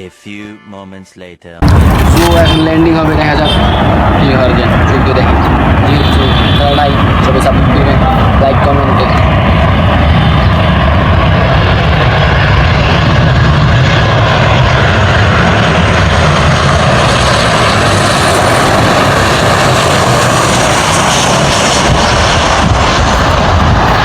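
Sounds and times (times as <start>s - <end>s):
airliner engines roaring: 1.6s - 24.0s.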